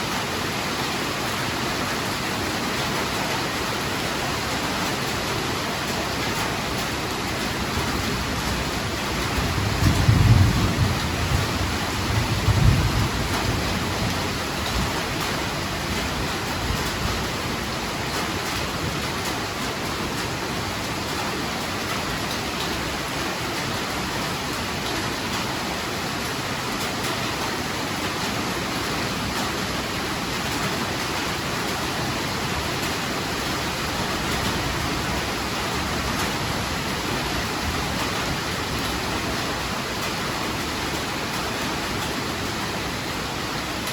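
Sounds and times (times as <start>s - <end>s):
heavy rain: 0.0s - 43.9s
low rumble of thunder: 7.7s - 17.4s.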